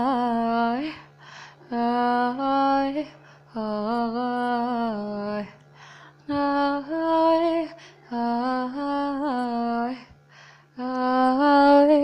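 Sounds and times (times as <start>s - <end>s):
breaths: 0.9s - 1.7s, 3.1s - 3.5s, 5.6s - 6.3s, 7.7s - 8.1s, 10.1s - 10.8s
girl singing unaccompanied: 1.7s - 5.6s, 10.8s - 12.0s.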